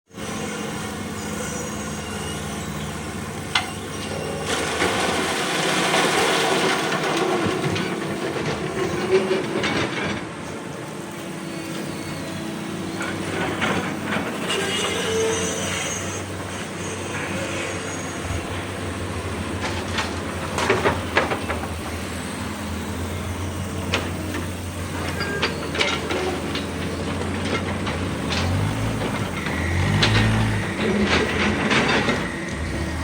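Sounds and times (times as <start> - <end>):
excavator diesel engine running: 0.1 - 33.0
brief squeals: 1.2 - 3.0, 11.4 - 13.5, 14.3 - 18.6
metallic clanking: 23.8 - 33.0.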